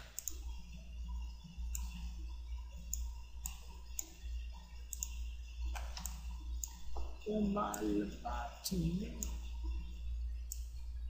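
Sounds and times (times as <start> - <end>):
computer mouse clicks: 0.0 - 0.5, 1.7 - 2.1, 2.8 - 4.2, 4.9 - 6.9, 10.5 - 10.7
steady low hum: 0.0 - 11.0.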